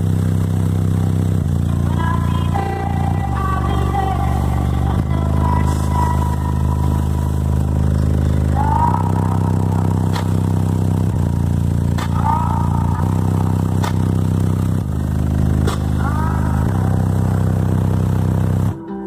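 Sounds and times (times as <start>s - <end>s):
loud low bass notes: 0.0s - 18.9s
sharp clicks: 10.0s - 11.2s, 11.9s - 14.9s, 15.5s - 16.1s.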